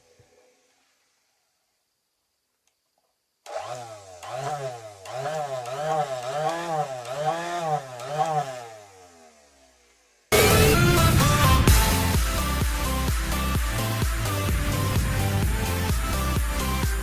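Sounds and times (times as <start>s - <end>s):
saw motor spinning cutting disc: 3.5s - 17.0s.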